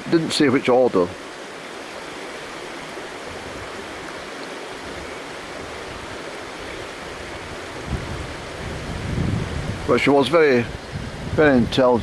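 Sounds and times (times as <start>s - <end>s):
stream rushing over its bed: 0.0s - 12.0s.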